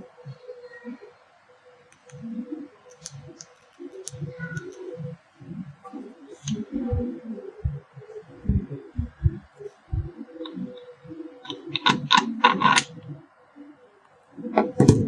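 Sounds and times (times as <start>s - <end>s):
faint steady hum: 0.0s - 15.0s
rubbing and handling noise: 9.0s - 12.9s, 14.6s - 15.0s
electric iron parts clicking: 11.5s - 12.9s, 14.6s - 15.0s.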